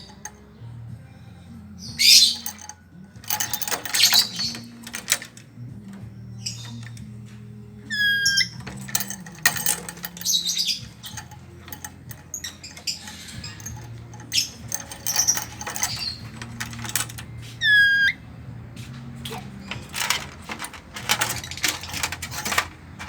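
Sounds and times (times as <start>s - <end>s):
parrot scratchy chatter and clicks: 8.0s - 18.2s.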